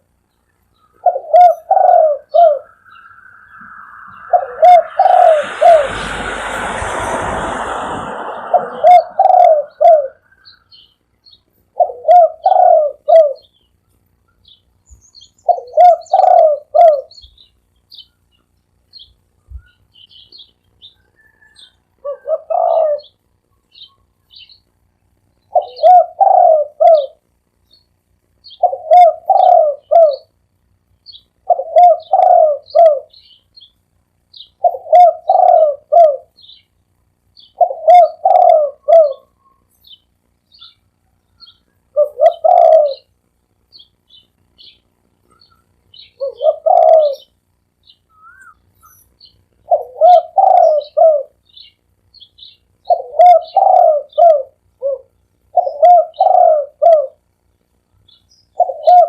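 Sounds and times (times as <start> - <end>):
small birds chirping: 0.0 - 6.6, 8.5 - 59.0
dove cooing: 0.9 - 6.4, 7.6 - 10.6, 11.7 - 13.5, 15.4 - 17.3, 21.2 - 23.2, 25.5 - 27.2, 28.6 - 30.4, 31.4 - 33.2, 34.6 - 36.4, 37.4 - 39.5, 41.5 - 43.1, 46.2 - 47.4, 49.6 - 51.4, 52.8 - 57.2, 58.6 - 59.0.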